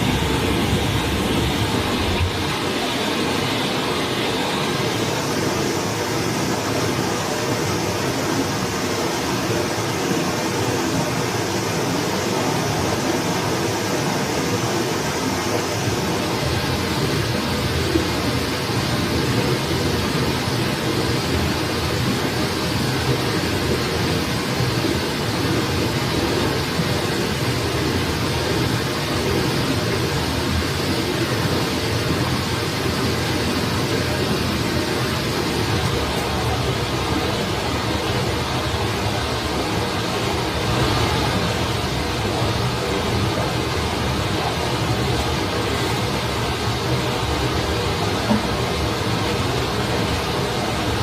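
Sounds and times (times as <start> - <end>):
forest stream rushing: 0.0 - 51.0.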